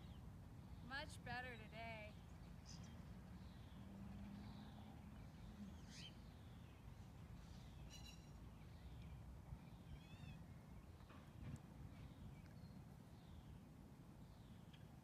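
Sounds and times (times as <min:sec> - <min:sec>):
faint bird chirps: 0:04.4 - 0:06.8, 0:07.5 - 0:11.2.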